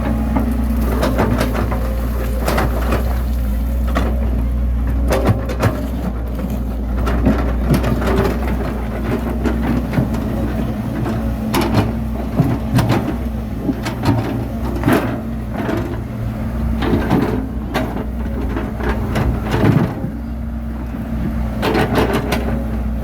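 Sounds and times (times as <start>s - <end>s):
bulldozer diesel engine running: 0.0s - 23.0s.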